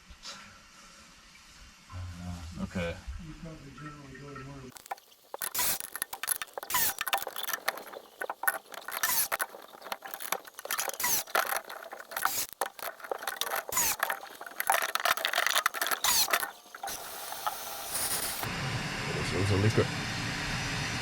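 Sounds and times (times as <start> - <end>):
tools clicking and scraping on pipes: 4.7 - 18.5.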